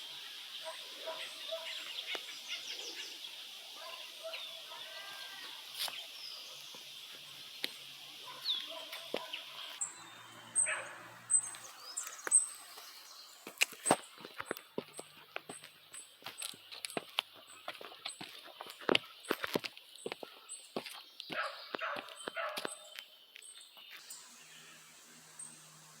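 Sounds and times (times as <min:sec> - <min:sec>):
birds chirping: 0:00.0 - 0:26.0
high-pitched drone: 0:24.0 - 0:26.0.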